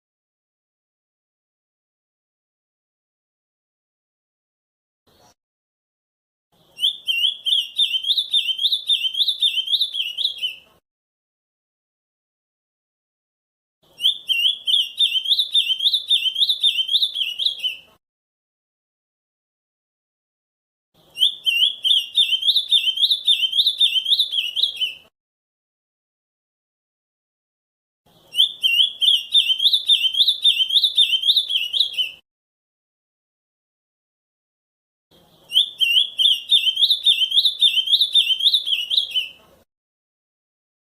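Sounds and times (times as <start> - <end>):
bird singing whistled notes: 6.6 - 10.6, 13.9 - 17.9, 21.1 - 25.1, 28.2 - 32.2, 35.3 - 39.4.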